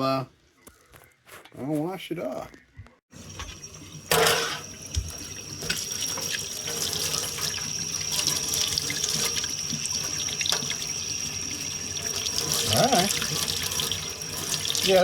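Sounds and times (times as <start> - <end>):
faucet water running into sink: 3.1 - 15.0.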